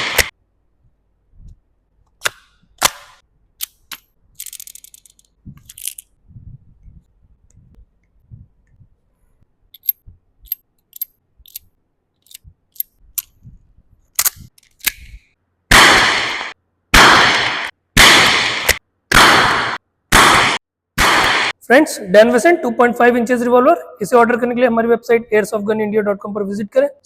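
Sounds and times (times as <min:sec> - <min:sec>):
loud gunshots: 0:15.7 - 0:21.6.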